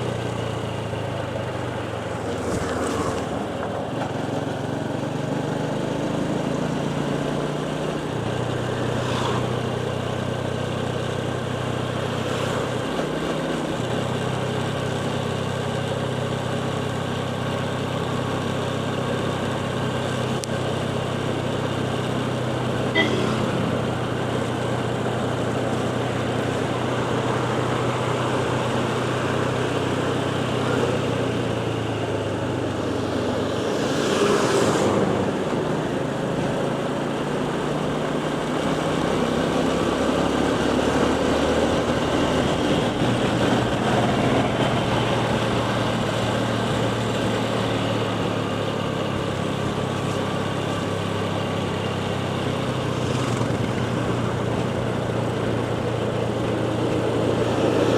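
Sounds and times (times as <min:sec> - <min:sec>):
motorcycle engine running: 0:00.0 - 0:57.9
wind and road rush: 0:00.0 - 0:57.9
rushing sweep: 0:30.7 - 0:36.3.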